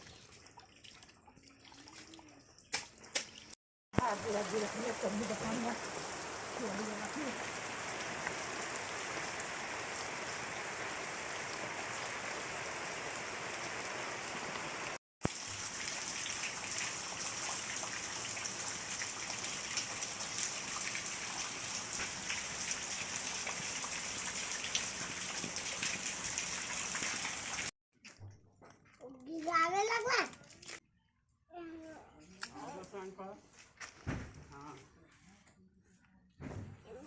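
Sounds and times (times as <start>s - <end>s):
steady rain hiss: 4.0s - 17.2s.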